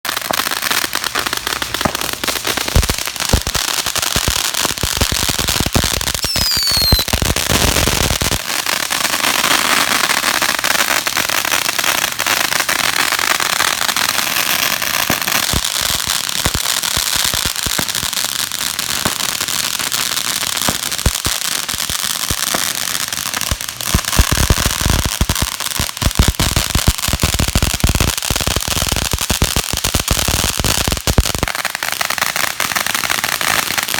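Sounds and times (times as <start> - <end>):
firecrackers popping: 0.0 - 33.9
falling whistle: 6.2 - 7.1.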